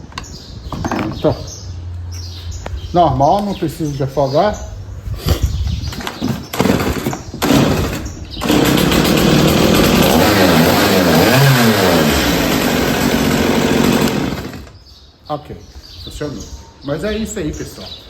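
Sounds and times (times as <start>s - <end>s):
chainsaw idling and revving: 6.6s - 14.8s.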